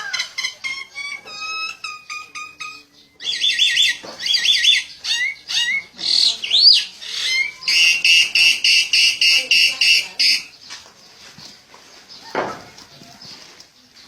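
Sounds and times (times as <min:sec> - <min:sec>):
bird chirping and chattering: 0:00.0 - 0:10.8
bird whistle rising and falling: 0:03.2 - 0:05.8, 0:06.5 - 0:10.5.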